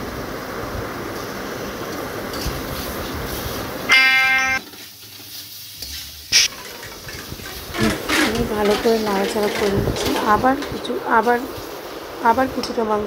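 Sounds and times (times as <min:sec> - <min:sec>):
chicken sizzling in hot oil: 0:01.1 - 0:13.0
loud steady pitched tone: 0:03.9 - 0:04.6
steel spatula scraping pan: 0:05.8 - 0:10.4.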